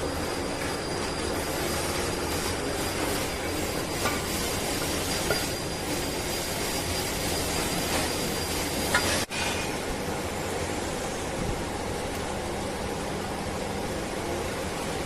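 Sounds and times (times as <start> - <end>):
workshop machinery noise: 0.0 - 15.0.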